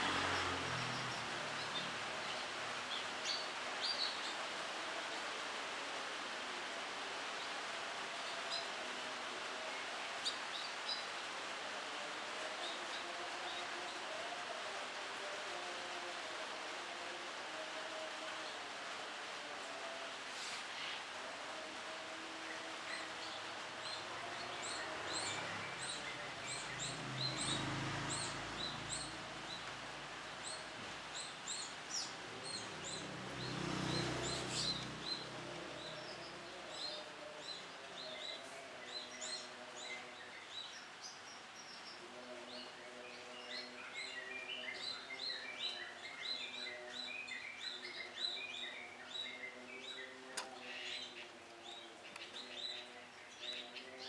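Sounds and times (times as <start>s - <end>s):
canaries chirping: 22.7s - 41.9s.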